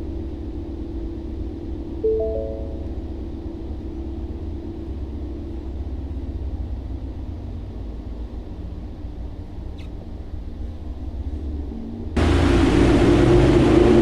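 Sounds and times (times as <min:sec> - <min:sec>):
short ringing tone: 0:02.0 - 0:03.1.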